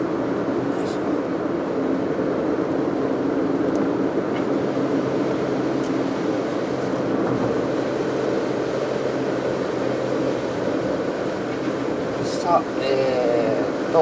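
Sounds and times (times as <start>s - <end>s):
car engine hum: 0.0s - 14.0s
road and tyre noise: 0.0s - 14.0s.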